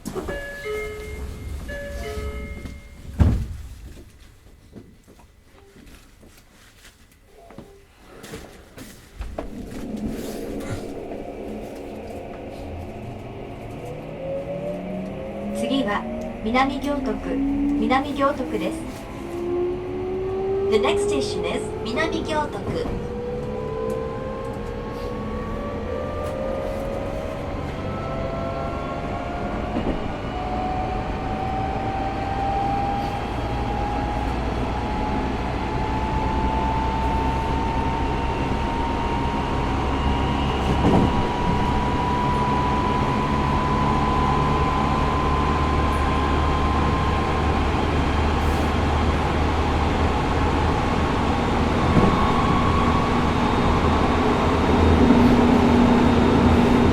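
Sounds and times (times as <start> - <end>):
train knocks: 0.0 - 4.1, 22.4 - 24.0, 40.4 - 42.1
wheels rumbling on rail: 0.0 - 56.9
train motor whine rising: 9.3 - 56.9.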